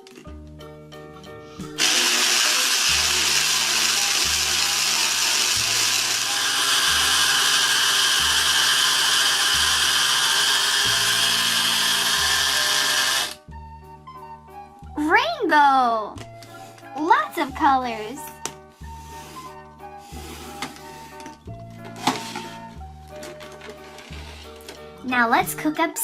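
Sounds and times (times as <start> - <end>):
blender running: 1.7 - 13.5.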